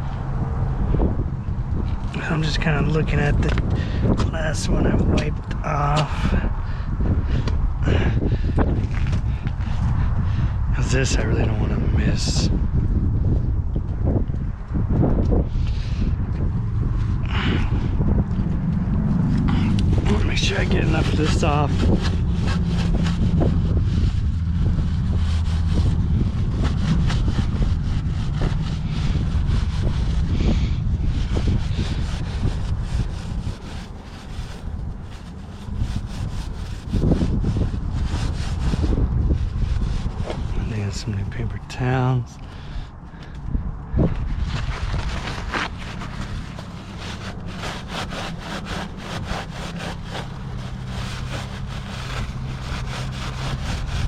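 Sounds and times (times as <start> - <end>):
low rumble: 0.0 - 54.0
paper towel wiping chain: 19.4 - 41.8, 44.5 - 54.0.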